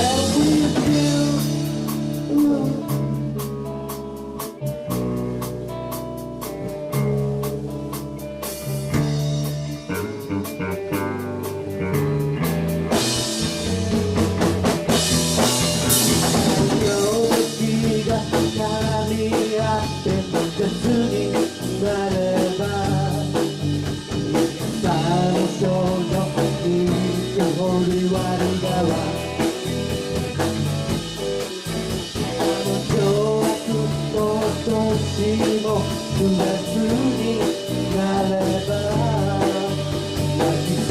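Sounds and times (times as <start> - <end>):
person singing: 0.0 - 3.2, 16.7 - 23.8, 24.7 - 29.7, 31.6 - 40.9
live blues band playing: 0.0 - 40.9.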